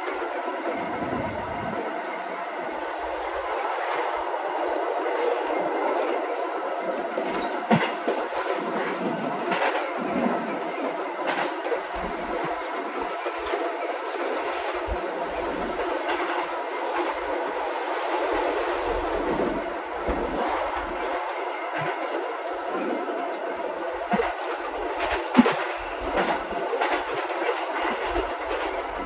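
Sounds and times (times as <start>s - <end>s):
electric train rumbling: 0.0s - 29.0s
wheel clacks over rail joints: 18.9s - 29.0s.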